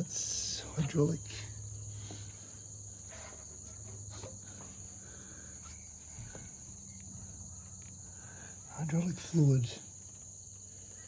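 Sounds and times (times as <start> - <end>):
high-pitched insect chirring: 2.5 - 11.0.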